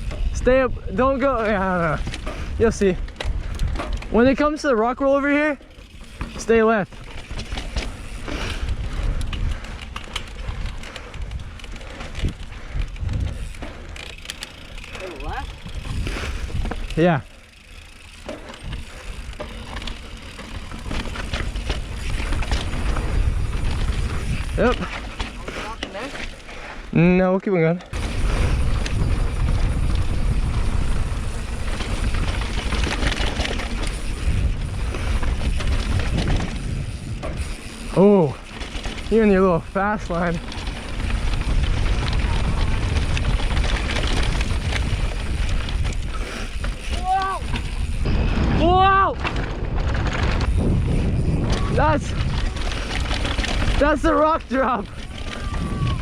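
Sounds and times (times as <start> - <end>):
wind buffeting microphone: 0.0 - 5.0, 5.9 - 25.6, 27.9 - 56.0
bike tyres rolling over dirt: 0.0 - 56.0
bike knocks and rattles: 5.6 - 26.5, 27.8 - 56.0.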